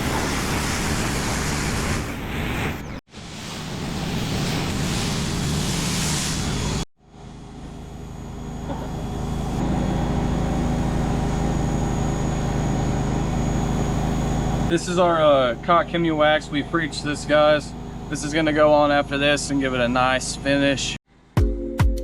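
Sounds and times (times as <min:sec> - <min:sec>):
motor hum: 0:06.4 - 0:21.0.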